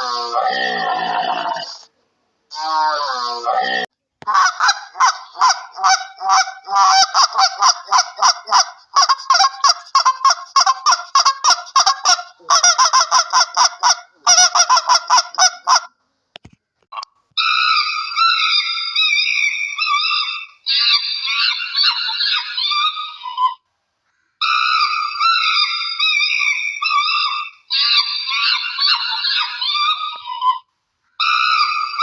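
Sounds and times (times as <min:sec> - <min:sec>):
geese honking: 0:04.3 - 0:15.9.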